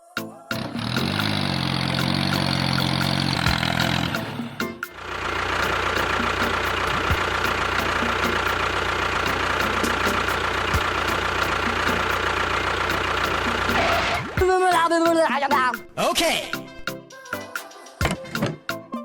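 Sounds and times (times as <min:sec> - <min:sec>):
motor running steadily: 0:00.6 - 0:14.2.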